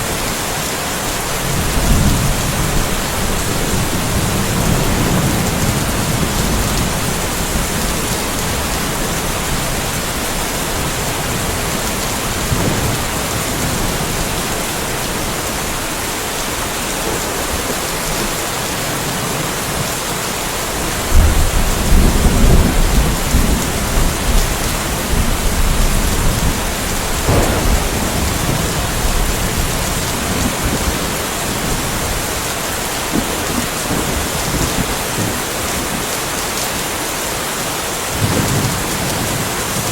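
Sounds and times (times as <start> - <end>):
steady rain: 0.0 - 39.9
thunder rumbling: 1.3 - 18.3, 20.9 - 36.1
loud thunderclap: 1.4 - 8.8, 21.1 - 32.3.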